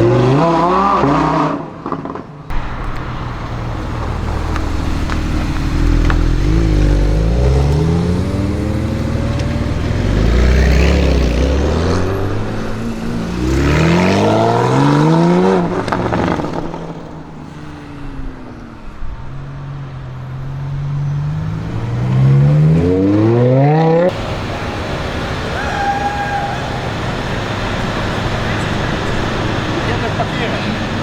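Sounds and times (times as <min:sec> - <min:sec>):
car engine accelerating hard: 0:00.0 - 0:31.0
sharp exhaust pops: 0:01.9 - 0:12.0.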